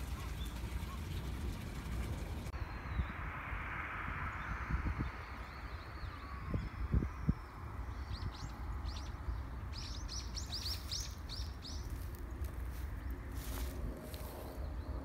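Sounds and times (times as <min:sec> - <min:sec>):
low outdoor rumble: 0:00.0 - 0:15.0
small bird chirping: 0:04.4 - 0:12.8.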